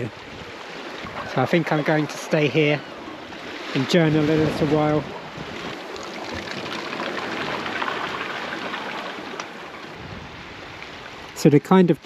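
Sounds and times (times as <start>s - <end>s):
sea washing against rocks: 0.0s - 11.6s.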